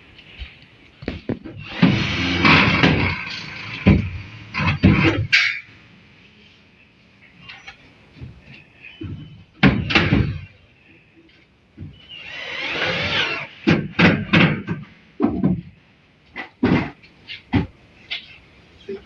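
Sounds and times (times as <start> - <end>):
knocks and bangs on hard surfaces: 1.0 - 5.3, 9.0 - 10.4, 13.6 - 15.7, 16.5 - 17.8.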